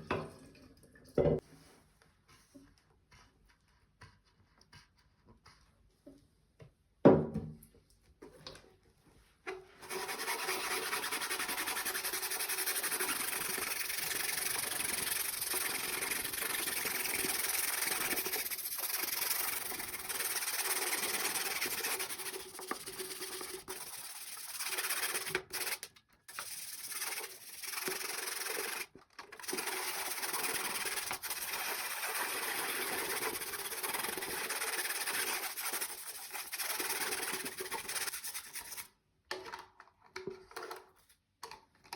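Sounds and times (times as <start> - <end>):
knock: 7.0 - 7.6
brush scrubbing coffee maker part: 9.8 - 38.9.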